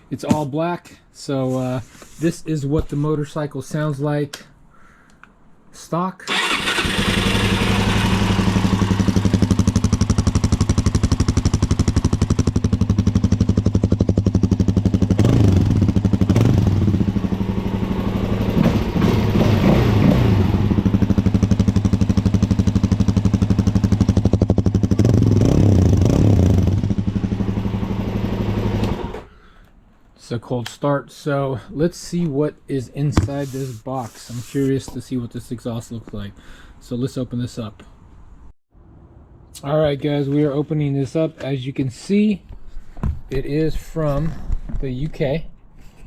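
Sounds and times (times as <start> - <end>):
motorcycle engine idling: 6.3 - 19.0, 20.5 - 25.4, 26.6 - 28.8.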